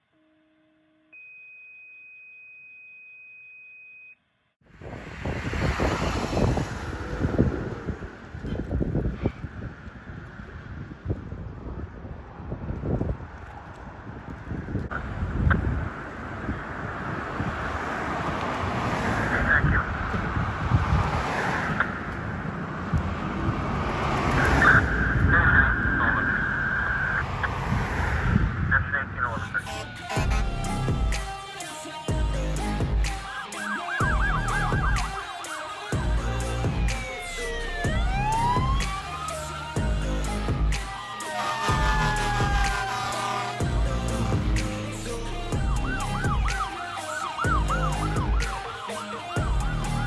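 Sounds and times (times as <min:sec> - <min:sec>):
low rumble of vehicles: 0:04.6 - 0:31.2, 0:32.1 - 0:33.1, 0:34.0 - 0:35.1, 0:36.0 - 0:40.9, 0:41.5 - 0:50.0
wind gusting on microphone: 0:04.6 - 0:31.3, 0:34.0 - 0:35.2, 0:35.9 - 0:50.0
fire engine driving by: 0:04.7 - 0:50.0
steady high tone: 0:29.3 - 0:50.0.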